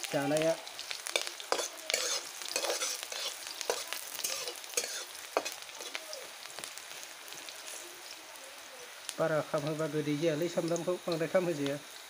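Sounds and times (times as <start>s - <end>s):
onions sizzling in hot oil: 0.0s - 12.0s
metal spatula scraping a wok: 1.0s - 6.0s.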